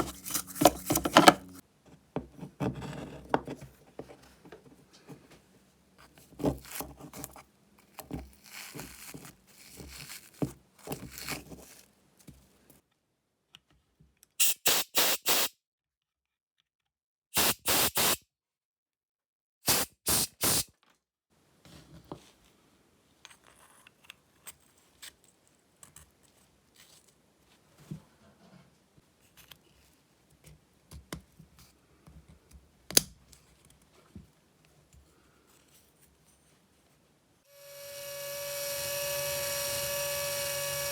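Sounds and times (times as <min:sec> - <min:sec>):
parts scraped on bench: 0:00.0 - 0:01.6
hissing spray bursts: 0:14.4 - 0:15.5, 0:17.4 - 0:18.2, 0:19.7 - 0:20.6.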